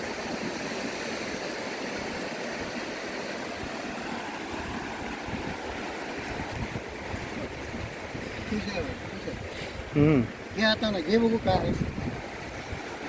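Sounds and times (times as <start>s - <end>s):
sea surf on a beach: 0.0s - 13.0s
wind buffeting microphone: 3.5s - 13.0s.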